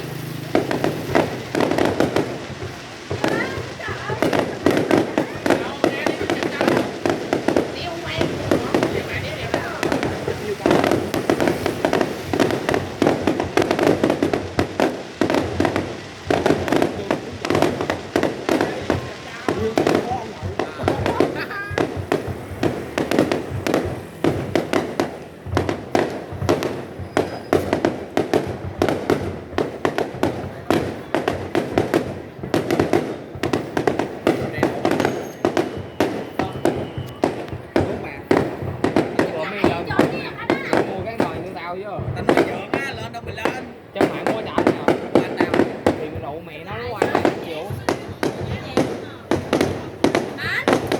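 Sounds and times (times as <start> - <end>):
fireworks bangs and booms: 0.0 - 50.9.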